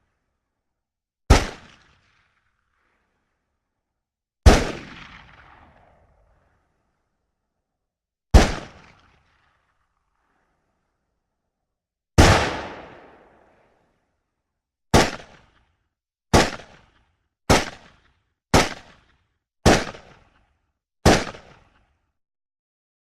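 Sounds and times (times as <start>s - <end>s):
pistol shots with echo: 1.3s - 2.1s, 4.4s - 6.0s, 8.4s - 9.1s, 12.2s - 13.6s, 14.9s - 15.6s, 16.3s - 20.4s, 21.0s - 21.8s.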